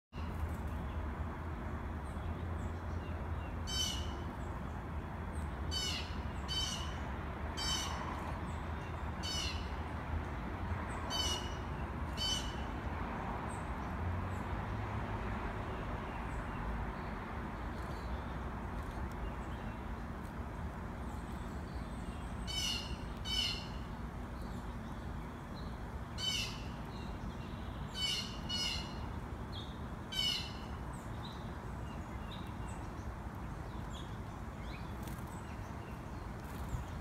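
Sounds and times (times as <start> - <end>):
bird harsh calls: 3.6 - 4.2, 5.7 - 7.0, 7.6 - 8.1, 9.2 - 9.8, 11.1 - 12.6, 22.4 - 23.9, 26.2 - 27.2, 27.8 - 29.0, 30.1 - 30.8.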